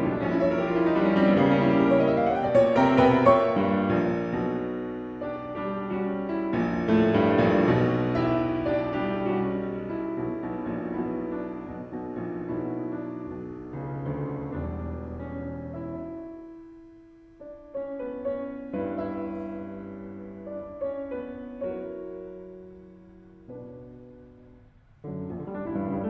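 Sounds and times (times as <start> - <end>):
slow piano music: 0.0 - 26.0.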